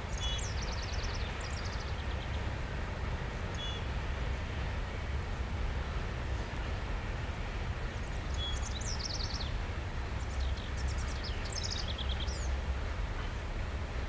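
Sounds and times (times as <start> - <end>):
freight train rumbling past: 0.0 - 14.0
songbird trilling: 0.1 - 2.3, 8.3 - 9.5, 10.4 - 12.6.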